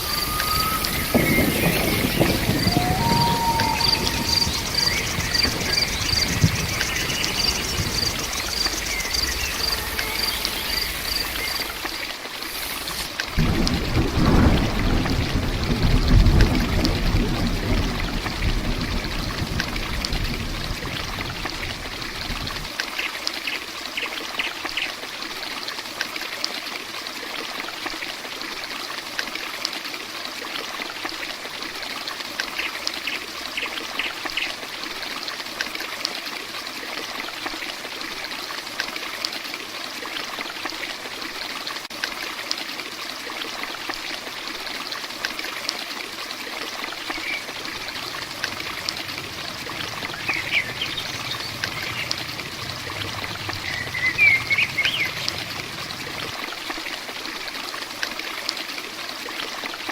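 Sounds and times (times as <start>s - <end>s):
faint high chirps: 0.0s - 11.8s
heavy rain: 0.0s - 22.9s, 45.1s - 59.9s
running water: 0.0s - 59.9s
low rumble: 47.5s - 56.5s.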